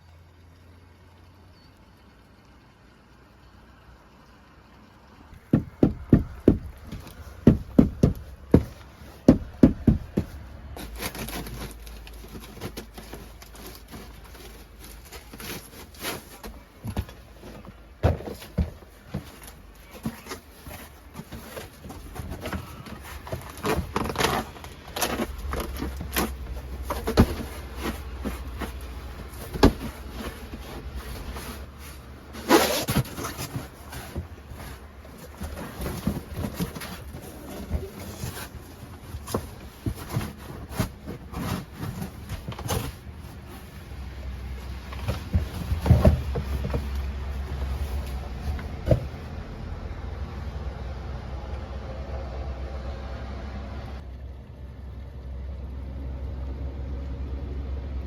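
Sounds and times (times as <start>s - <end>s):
knocks clicks and clatter: 5.4s - 49.2s.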